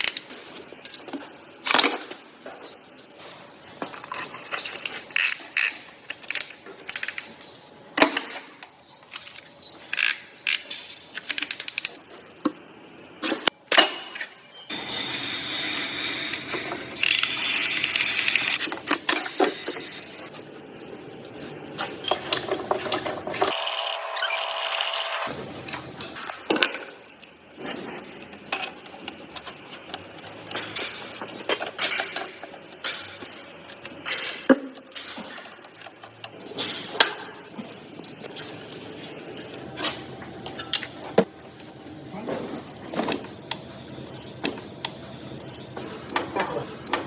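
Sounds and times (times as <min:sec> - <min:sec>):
tools and metal parts clicking: 0:00.0 - 0:02.2, 0:03.8 - 0:12.0, 0:16.1 - 0:19.8, 0:28.5 - 0:37.2.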